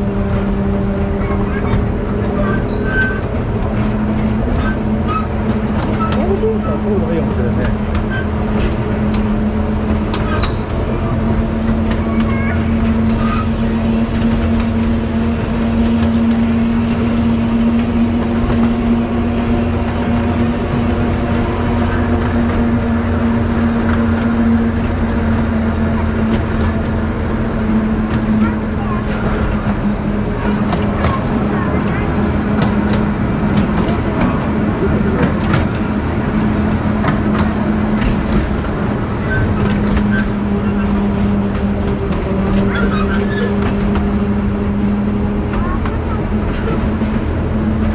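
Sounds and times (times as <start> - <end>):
vehicle engine droning: 3.3 - 33.9
wheels clicking on rails: 7.2 - 47.9.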